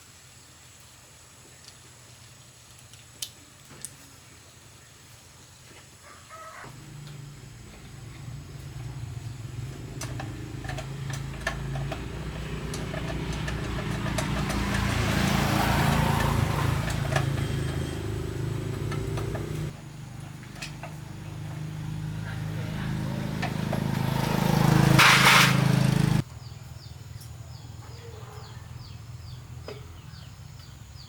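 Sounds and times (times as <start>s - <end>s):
motorcycle engine starting and running: 6.7s - 27.9s, 28.5s - 31.0s.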